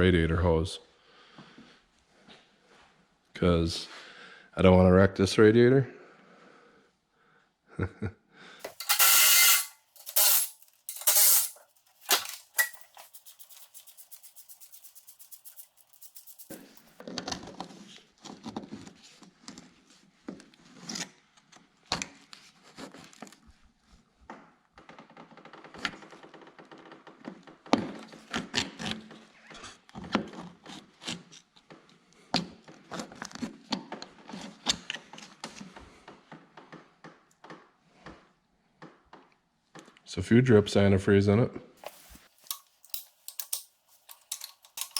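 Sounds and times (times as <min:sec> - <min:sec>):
impact wrench bursts: 0:08.6 - 0:16.8
tools and metal parts rattling: 0:08.6 - 0:17.0, 0:41.8 - 0:44.9.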